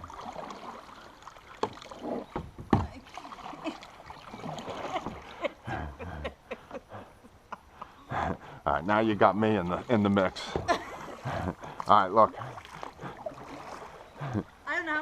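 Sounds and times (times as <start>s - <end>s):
rushing creek current: 0.0s - 5.8s, 6.8s - 15.0s
paddle splashes: 0.0s - 5.9s, 8.2s - 15.0s
knocks against hull: 1.6s - 3.0s, 10.5s - 10.8s.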